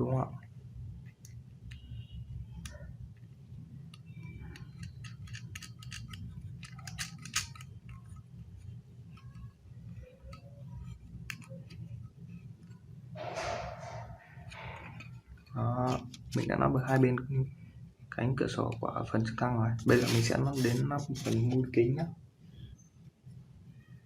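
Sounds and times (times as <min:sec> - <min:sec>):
steady low hum: 0:00.0 - 0:24.0
plastic blocks clicking: 0:04.5 - 0:07.8.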